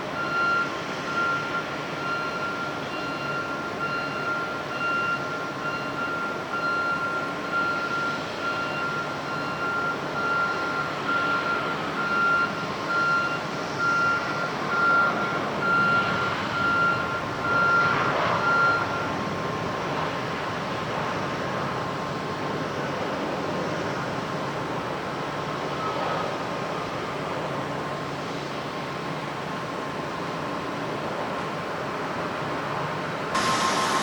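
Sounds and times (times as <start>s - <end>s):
vehicle reversing alarm beeping: 0.1s - 19.2s, 33.3s - 34.0s
rushing background noise: 19.2s - 34.0s.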